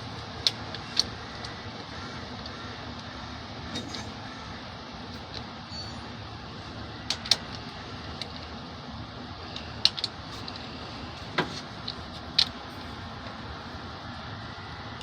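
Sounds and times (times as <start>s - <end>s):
steady low hum: 0.0s - 15.0s
metal tools clinking: 5.7s - 6.2s.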